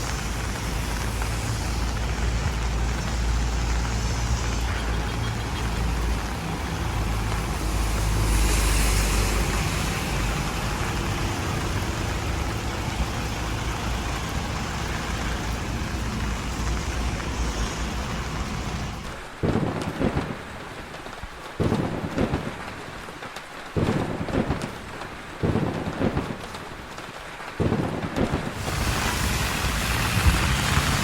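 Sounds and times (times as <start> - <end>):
vehicle passing close: 0.0 - 19.1, 28.6 - 31.0
traffic engine rumble: 0.0 - 19.4, 28.6 - 31.0
tyre hiss on wet road: 0.0 - 19.4, 28.6 - 31.0.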